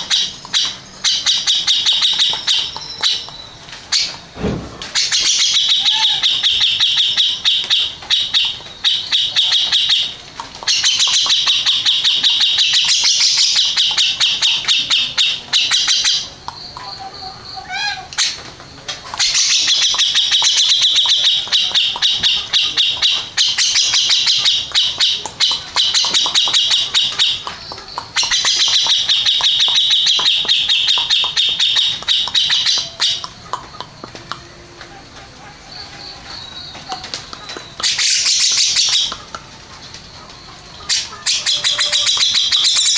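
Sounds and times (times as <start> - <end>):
bird singing rapid high notes: 0.0 - 4.4, 5.0 - 18.4, 19.2 - 34.6.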